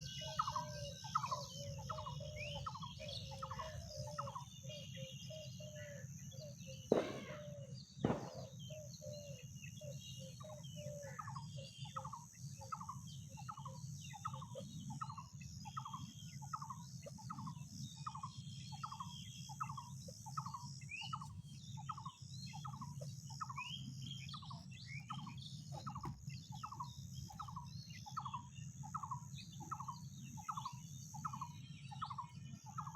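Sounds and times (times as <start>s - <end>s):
birds chirping faintly: 0.0s - 32.9s
bird repeating short call: 6.9s - 8.6s
sharp knocks: 6.9s - 8.6s.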